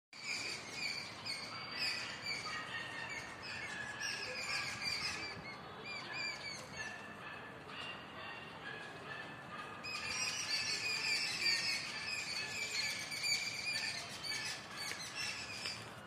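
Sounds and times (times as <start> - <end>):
small birds chirping: 7.8 - 16.0.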